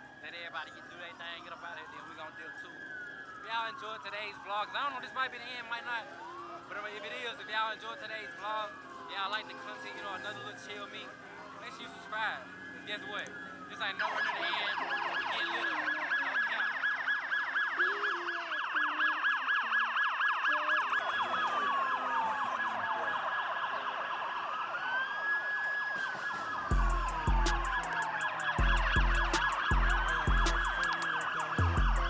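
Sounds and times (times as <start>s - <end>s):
police sirens: 0.0s - 32.0s
hip-hop beat with heavy bass: 25.9s - 32.0s.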